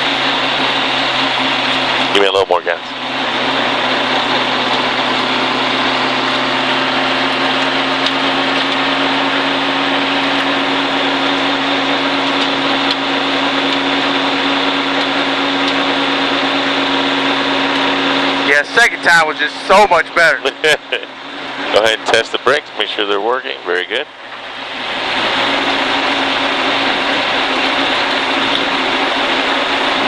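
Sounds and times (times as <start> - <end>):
car engine droning: 0.0 - 30.0.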